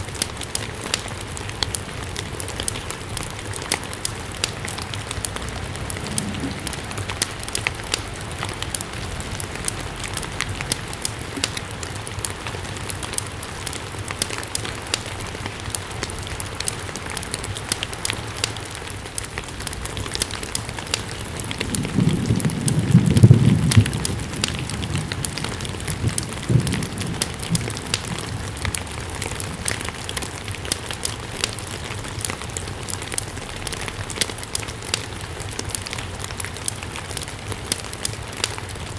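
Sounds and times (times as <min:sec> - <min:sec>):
steady rain: 0:00.0 - 0:38.9
wood fire crackling: 0:00.0 - 0:38.9
low rumble: 0:04.2 - 0:11.2.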